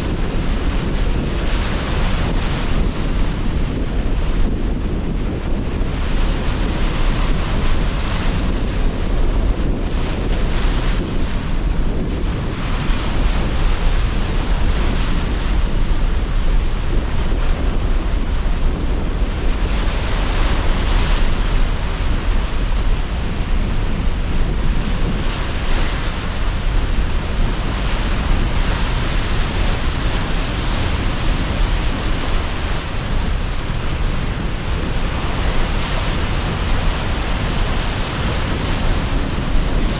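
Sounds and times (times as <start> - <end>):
strong gusting wind: 0.0 - 39.9
sea surf breaking: 10.1 - 39.9.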